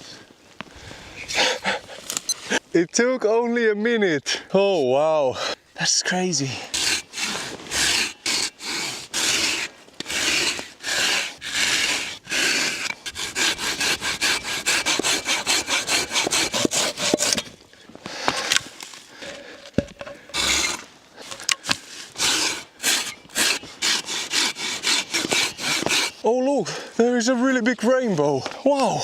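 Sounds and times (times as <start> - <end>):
hand saw cutting log: 6.6 - 17.5, 19.2 - 26.2.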